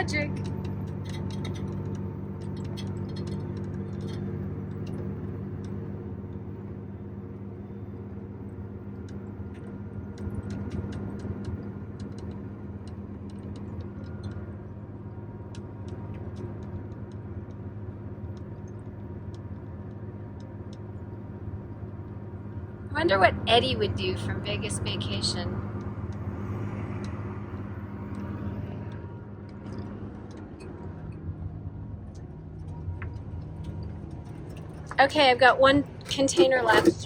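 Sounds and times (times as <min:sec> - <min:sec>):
light ticks and rattles: 0:00.0 - 0:06.4, 0:27.0 - 0:37.0
motorhome engine droning: 0:00.0 - 0:37.0.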